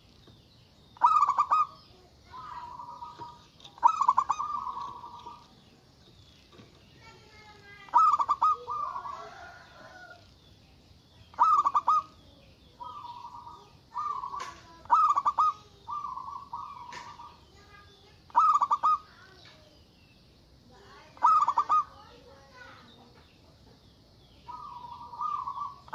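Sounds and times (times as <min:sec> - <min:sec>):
dove singing rapid notes: 0:00.0 - 0:25.9
soft drawn-out dove coos: 0:01.0 - 0:05.6, 0:07.9 - 0:10.3, 0:11.3 - 0:12.1, 0:12.8 - 0:17.3, 0:18.3 - 0:19.1, 0:21.2 - 0:22.0, 0:24.5 - 0:25.9.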